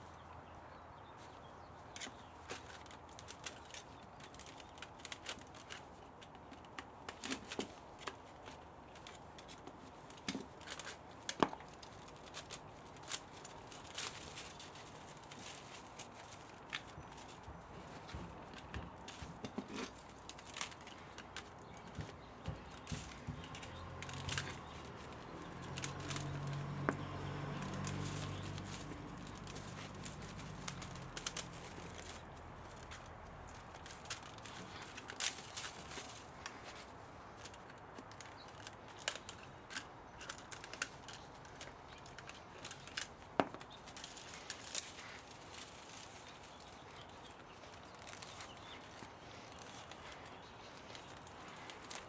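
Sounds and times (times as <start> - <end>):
metal parts and tools clicking: 19.0 - 36.3.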